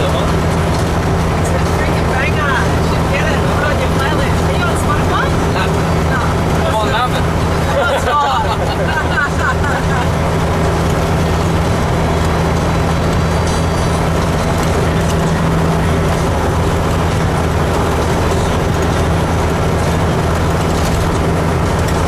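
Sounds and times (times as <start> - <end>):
road noise: 0.0 - 22.0
truck diesel engine drone: 0.0 - 22.0.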